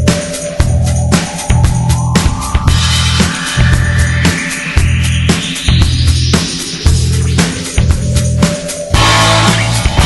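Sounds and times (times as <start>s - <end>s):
drum kit steady beat: 0.0s - 10.0s
heavy bass: 0.0s - 10.0s
tone rising in pitch: 1.0s - 7.6s.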